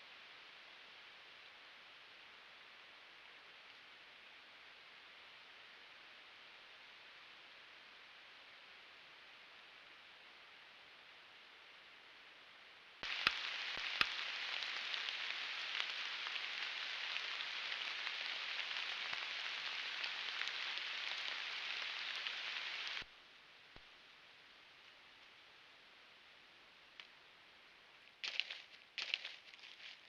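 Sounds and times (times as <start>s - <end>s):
faint hiss: 0.0s - 30.0s
rain pattering on leaves: 13.0s - 23.1s, 28.0s - 30.0s.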